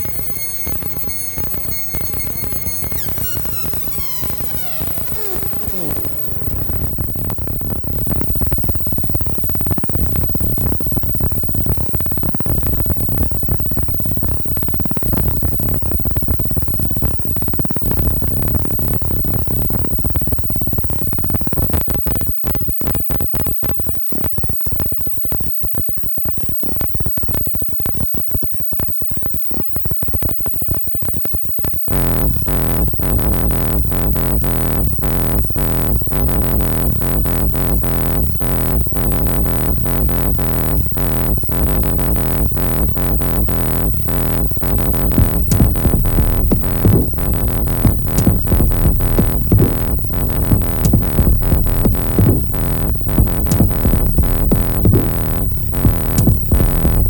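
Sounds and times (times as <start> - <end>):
fast-pulsing synth pattern: 0.0 - 7.0, 31.9 - 57.0
heavy bass: 0.0 - 7.4, 31.9 - 57.0.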